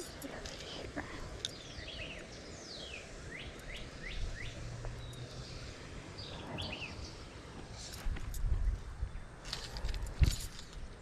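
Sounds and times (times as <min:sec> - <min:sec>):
outdoor background noise: 0:00.0 - 0:11.0
bird chirps: 0:01.4 - 0:07.3.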